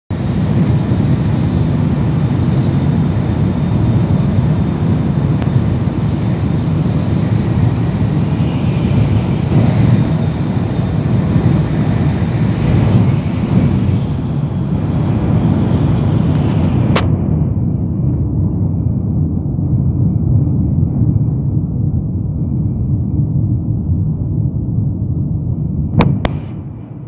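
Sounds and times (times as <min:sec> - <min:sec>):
train running noise inside cabin: 0:00.1 - 0:27.0.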